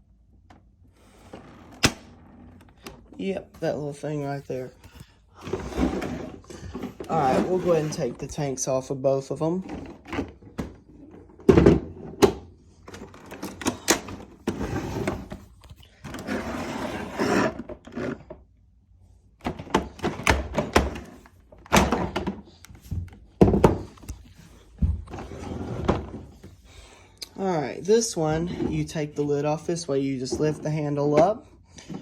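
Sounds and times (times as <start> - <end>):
plastic scraping and rattling: 4.8 - 8.4, 9.6 - 18.4
hard plastic knocks and clunks: 19.4 - 24.2.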